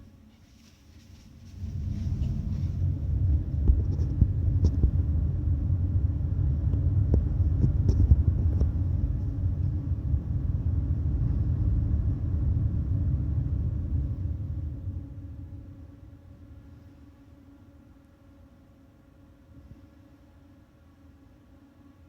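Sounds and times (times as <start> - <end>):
ferry machinery rumble: 1.0 - 16.2.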